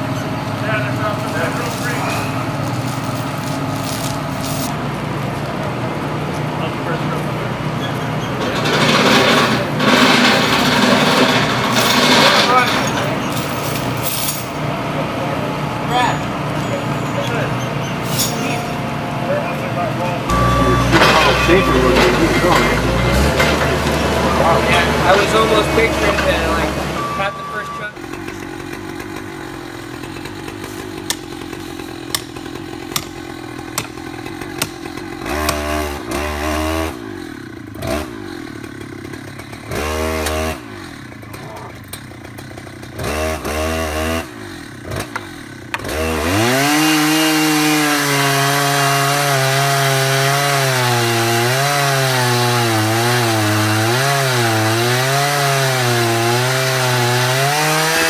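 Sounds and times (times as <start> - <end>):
chainsaw cutting wood: 8.6 - 13.8, 28.0 - 58.0.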